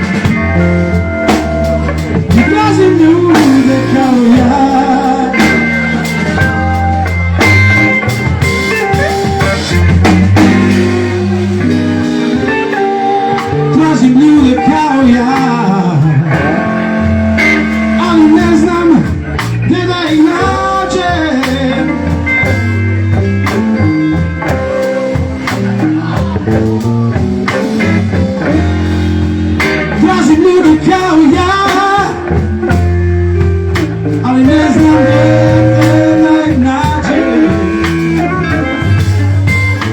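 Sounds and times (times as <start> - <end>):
bass guitar: 0.0 - 39.9
drum kit: 0.0 - 39.9
electric guitar lead: 0.0 - 39.9.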